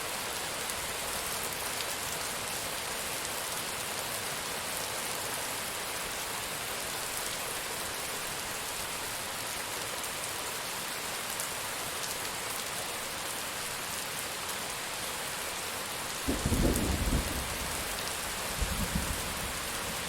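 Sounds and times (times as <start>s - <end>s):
rain falling on a surface: 0.0s - 20.0s.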